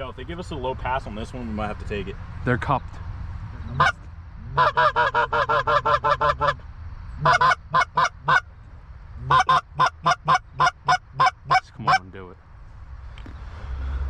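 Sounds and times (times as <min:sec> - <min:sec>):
goose honks and clucks: 0:03.6 - 0:06.6, 0:07.2 - 0:08.5, 0:09.2 - 0:12.1.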